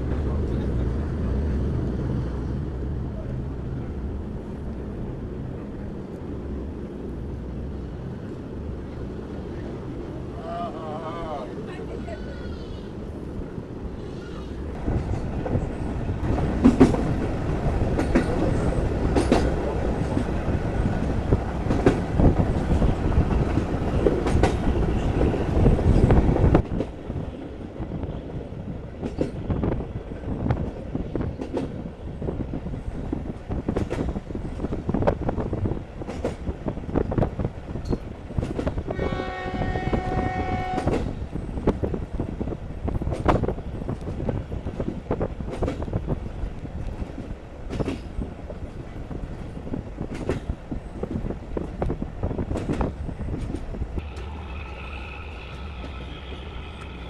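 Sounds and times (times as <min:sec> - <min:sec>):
train rumble: 0:00.0 - 0:57.0
train wheels clicking over rail joints: 0:14.8 - 0:27.0, 0:29.0 - 0:29.5, 0:33.4 - 0:35.3, 0:36.0 - 0:38.9, 0:39.7 - 0:42.0, 0:42.9 - 0:57.0
locomotive horn blast: 0:38.9 - 0:41.0, 0:54.0 - 0:57.0.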